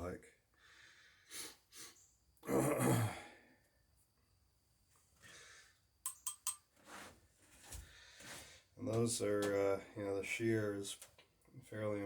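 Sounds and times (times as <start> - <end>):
man sighing: 2.4 - 3.4.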